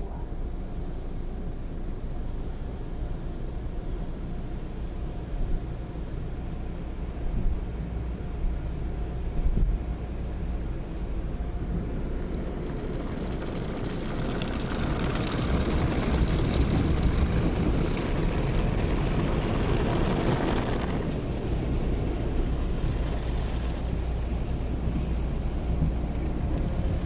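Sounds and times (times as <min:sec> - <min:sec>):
car wash rushing noise: 0:10.9 - 0:27.0.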